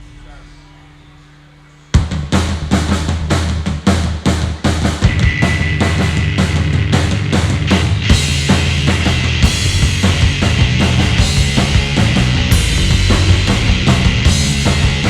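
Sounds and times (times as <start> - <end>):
bass guitar: 0.0 - 15.0
drum kit: 1.9 - 15.0
electric guitar: 5.1 - 15.0.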